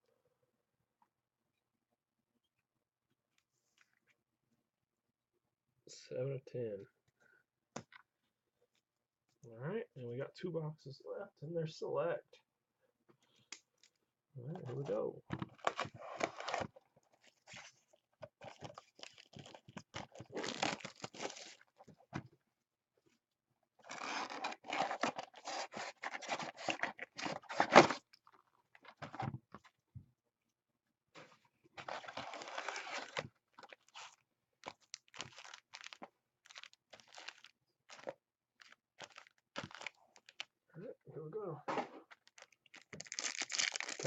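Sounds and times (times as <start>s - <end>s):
plastic packaging tearing and crinkling: 15.5s - 16.7s, 18.4s - 21.8s, 23.8s - 28.1s, 31.8s - 40.4s, 42.1s - 44.0s.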